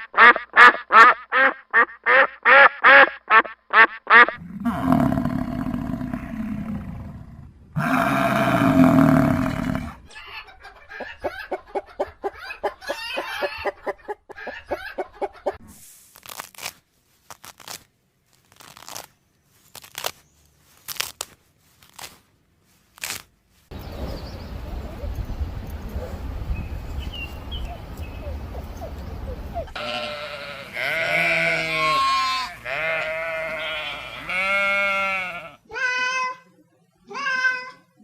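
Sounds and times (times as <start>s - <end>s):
chickens clucking: 10.1s - 15.6s, 27.3s - 29.8s.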